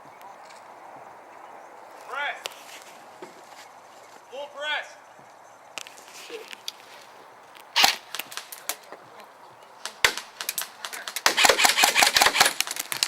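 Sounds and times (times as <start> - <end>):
airsoft gun shots: 7.8 - 8.6, 9.8 - 13.0
rapid airsoft gunfire: 7.8 - 8.6, 9.8 - 13.0.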